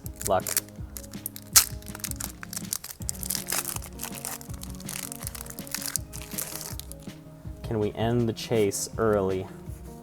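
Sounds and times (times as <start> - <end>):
foil wrapper crinkling and tearing: 0.0 - 7.1
background music with held notes: 0.0 - 10.0.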